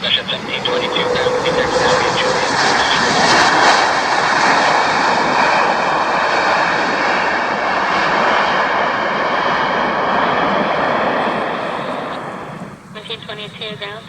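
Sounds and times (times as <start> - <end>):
faint high engine whine: 0.0 - 4.2, 10.0 - 14.0
jet engines rushing: 0.0 - 14.0.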